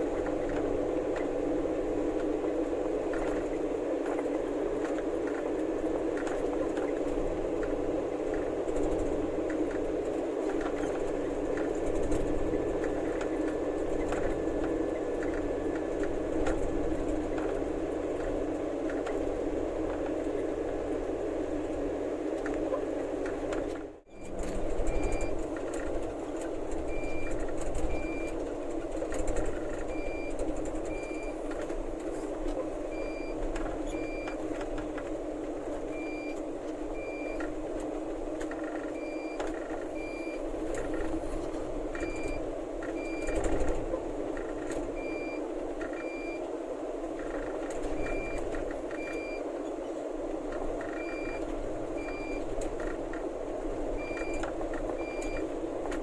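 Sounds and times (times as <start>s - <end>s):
truck engine running: 0.0s - 56.0s
truck reversing alarm beeping: 24.1s - 26.0s, 26.8s - 28.4s, 29.0s - 31.5s, 32.9s - 34.5s, 35.9s - 37.5s, 38.5s - 41.2s, 41.9s - 43.6s, 45.0s - 46.5s, 47.3s - 49.5s, 50.8s - 52.9s, 54.0s - 55.5s.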